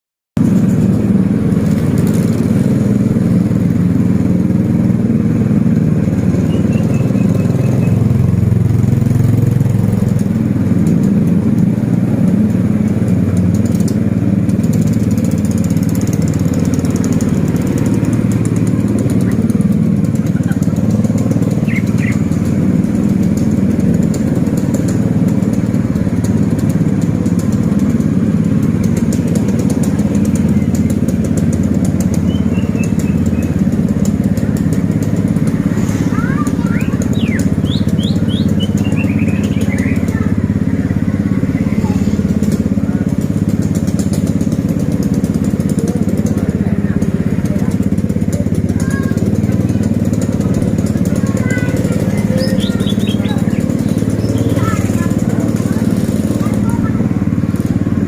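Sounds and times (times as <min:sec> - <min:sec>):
motorcycle engine running: 0:00.4 - 0:58.0
road noise: 0:00.4 - 0:58.0
faint high chirps: 0:06.4 - 0:08.1.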